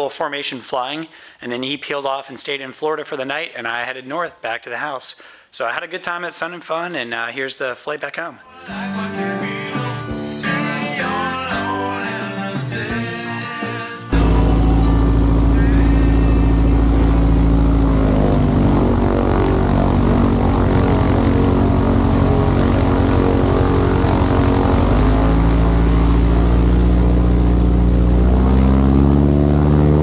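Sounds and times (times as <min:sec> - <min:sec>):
propeller plane engine: 0:14.2 - 0:30.0.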